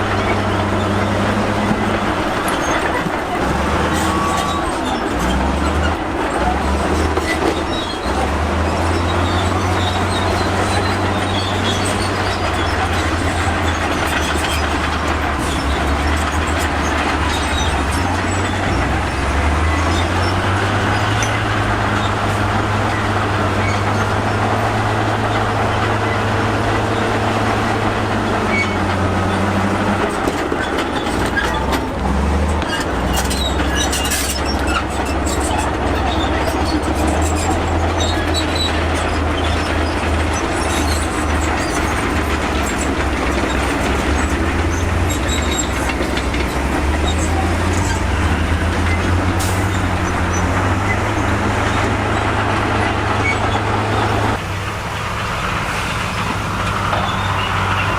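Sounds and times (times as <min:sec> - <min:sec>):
bulldozer diesel engine: 0:00.0 - 0:57.9
steel tracks clanking and squealing: 0:00.0 - 0:57.9.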